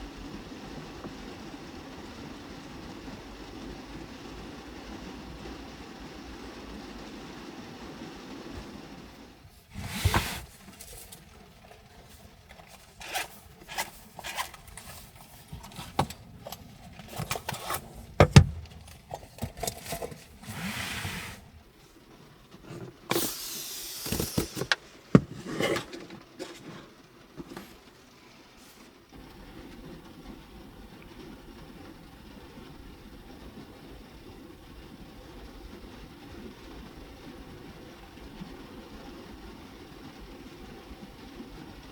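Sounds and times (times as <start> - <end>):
short rustling: 9.4 - 29.0
knocks clicks and scrapes: 9.6 - 21.7, 22.5 - 28.0.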